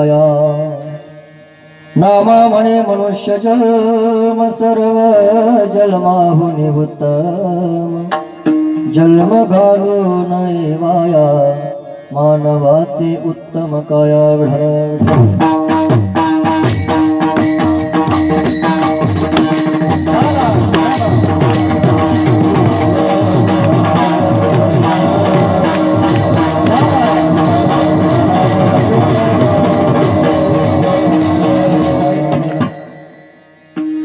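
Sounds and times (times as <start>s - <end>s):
fast percussion beat: 15.1s - 34.0s
wavering melody line: 15.7s - 34.0s
drone note: 15.8s - 32.7s.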